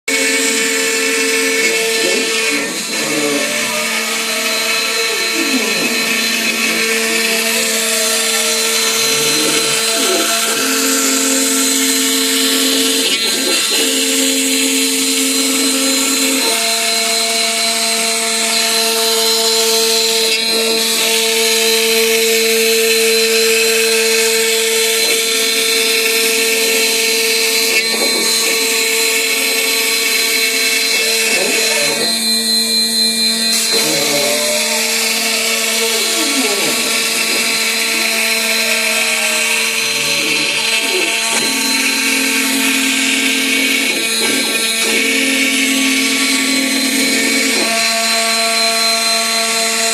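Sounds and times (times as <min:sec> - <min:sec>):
router spindle high whine: 0:00.0 - 0:49.9
gliding machine tones: 0:00.2 - 0:49.8.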